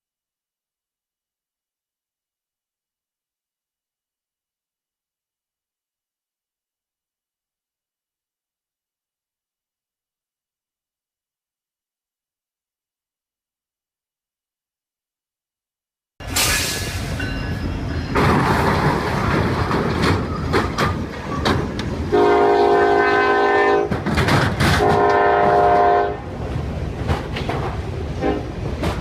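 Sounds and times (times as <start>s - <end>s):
moving train clatter: 16.2s - 29.0s
train horn blasts: 22.1s - 24.0s, 24.8s - 26.3s, 28.1s - 28.6s.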